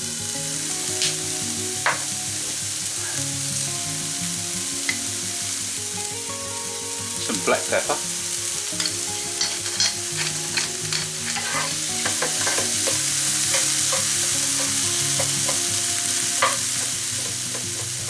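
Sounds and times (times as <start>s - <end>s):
vegetables sizzling in a frying pan: 0.0s - 18.0s
utensil scraping a pan: 8.7s - 18.0s.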